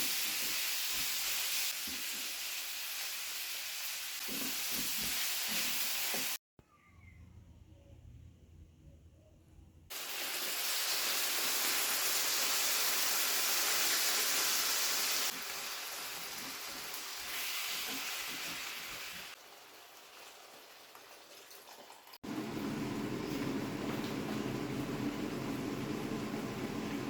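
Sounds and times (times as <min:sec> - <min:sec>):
food sizzling in a pan: 0:00.0 - 0:06.4, 0:09.9 - 0:22.2.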